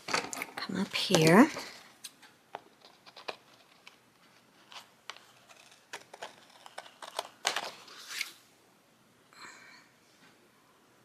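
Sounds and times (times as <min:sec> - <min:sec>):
paper and stickers rustling: 0:00.1 - 0:01.8, 0:02.6 - 0:08.4.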